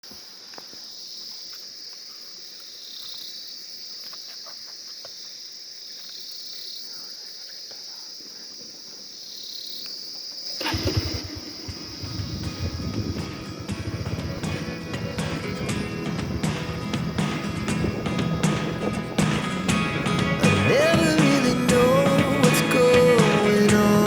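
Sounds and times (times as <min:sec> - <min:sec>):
insect chorus trilling: 0:00.0 - 0:19.0
loud low rumble: 0:11.1 - 0:20.8.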